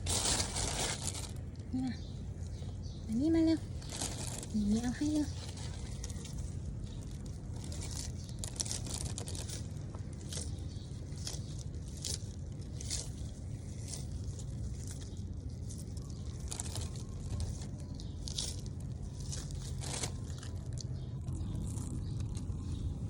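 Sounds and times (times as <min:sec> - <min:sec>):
low rumble: 0:00.0 - 0:23.0
tortoise crunching food: 0:00.0 - 0:23.0.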